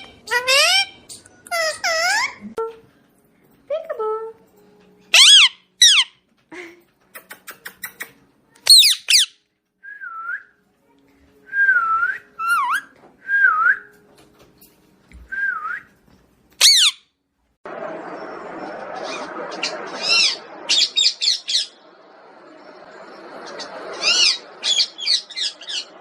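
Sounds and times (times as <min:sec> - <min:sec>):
parrot screeching: 0:00.0 - 0:02.4, 0:05.1 - 0:06.2, 0:08.7 - 0:09.4, 0:16.6 - 0:17.0, 0:19.0 - 0:21.8, 0:23.9 - 0:26.0
parrot whistling: 0:05.1 - 0:06.1, 0:08.7 - 0:09.4, 0:11.6 - 0:13.8, 0:16.6 - 0:17.0, 0:19.0 - 0:21.8, 0:23.6 - 0:26.0.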